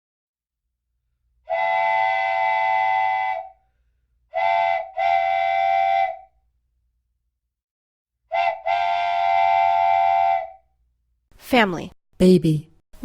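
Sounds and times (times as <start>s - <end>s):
train whistle blasts: 1.4s - 6.4s, 8.3s - 10.7s.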